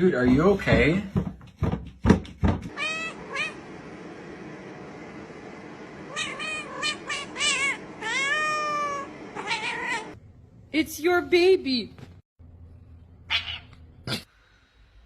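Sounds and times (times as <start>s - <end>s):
cat meowing: 2.7s - 3.6s, 6.1s - 10.2s.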